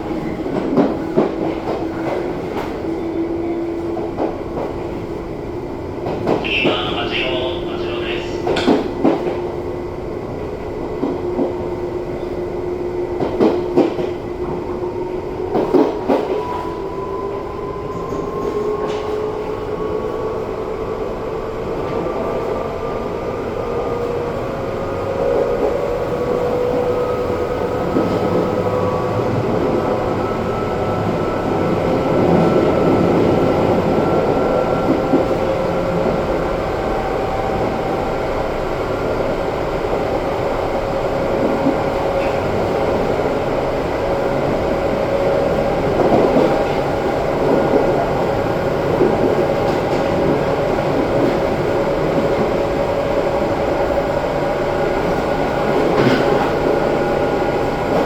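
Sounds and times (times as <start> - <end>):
train running noise: 0.0 - 58.0
rail-joint clacks: 6.0 - 9.4, 55.1 - 58.0.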